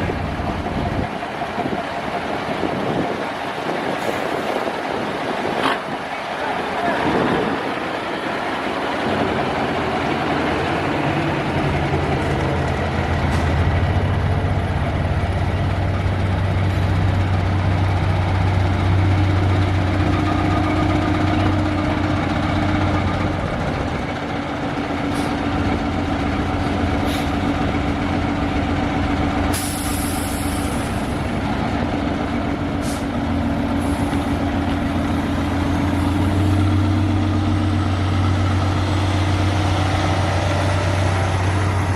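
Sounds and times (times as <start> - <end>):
truck diesel engine running: 0.0 - 41.9
air brake hiss: 27.0 - 27.4, 29.5 - 31.2, 32.8 - 33.1.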